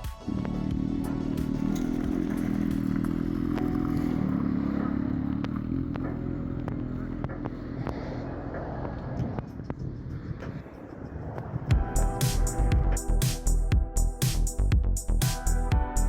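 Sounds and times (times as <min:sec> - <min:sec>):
car engine running: 0:00.1 - 0:09.9.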